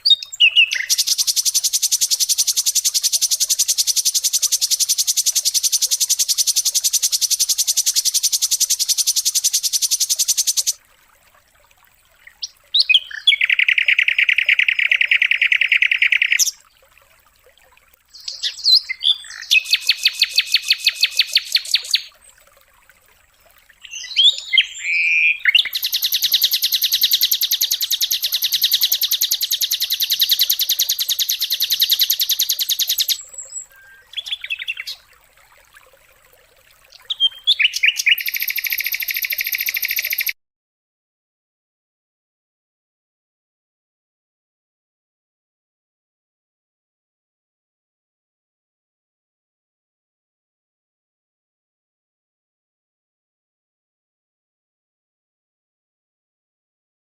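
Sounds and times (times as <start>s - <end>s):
songbird singing fast high trills: 0.0s - 10.8s, 12.8s - 16.6s, 18.2s - 22.1s, 23.8s - 35.0s, 36.9s - 40.4s.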